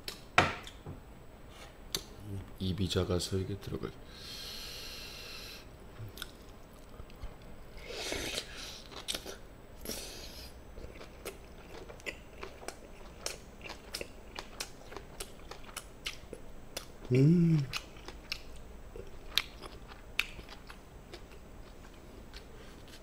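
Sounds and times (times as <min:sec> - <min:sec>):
breathy hisses: 0:04.1 - 0:05.7
person chewing food: 0:06.0 - 0:23.0.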